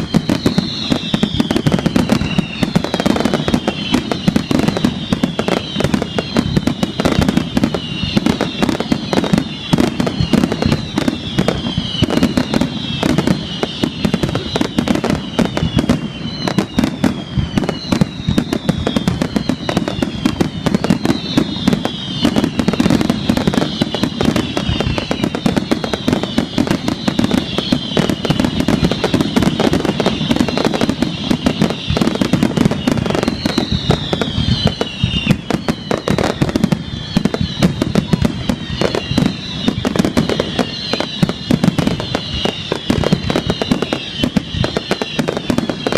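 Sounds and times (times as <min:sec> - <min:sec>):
fireworks bangs and crackles: 0:00.0 - 0:45.9
high falling whistles: 0:00.0 - 0:45.9.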